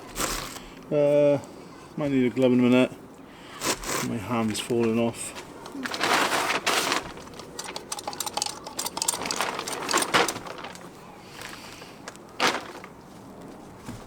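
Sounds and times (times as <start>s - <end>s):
small metal objects clinking: 5.6s - 11.6s.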